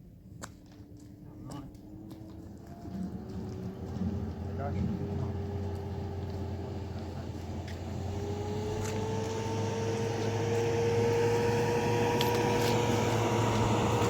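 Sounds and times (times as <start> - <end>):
vehicle engine humming: 1.1 - 14.0
engine whine rising in pitch: 1.8 - 14.0.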